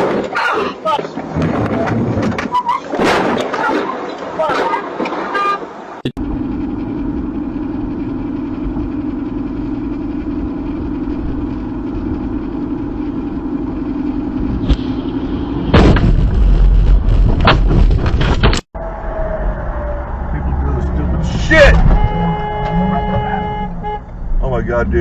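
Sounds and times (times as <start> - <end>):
loud crash with sharp impacts: 3.0 - 3.9, 15.6 - 18.6
car engine and road drone: 5.7 - 25.0.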